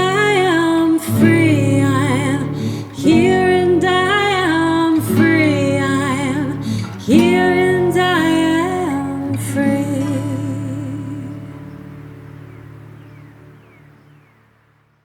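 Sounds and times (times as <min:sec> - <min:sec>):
woman singing: 0:00.0 - 0:11.9
guitar accompaniment: 0:00.0 - 0:14.8.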